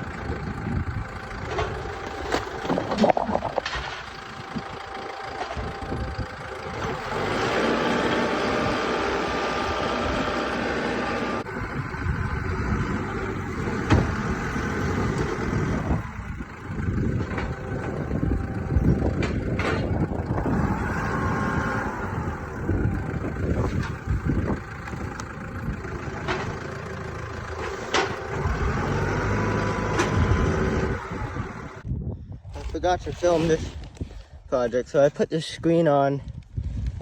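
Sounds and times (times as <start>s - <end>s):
truck engine rumbling: 0.0s - 34.1s
knocks and clatter: 1.4s - 5.9s, 13.5s - 15.8s, 16.6s - 20.3s, 23.6s - 30.8s.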